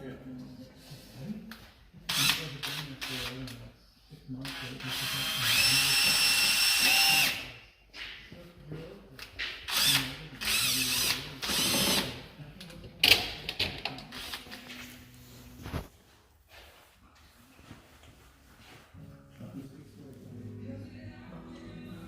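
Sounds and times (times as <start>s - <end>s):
handheld power tool spinning: 5.0s - 7.5s, 9.7s - 12.2s.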